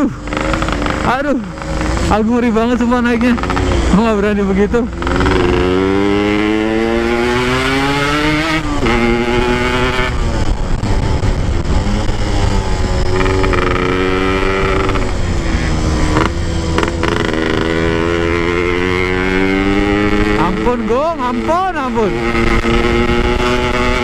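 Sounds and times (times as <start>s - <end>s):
motorcycle engine revving: 0.0s - 24.0s
wind rumble on microphone: 4.8s - 20.8s, 21.4s - 24.0s.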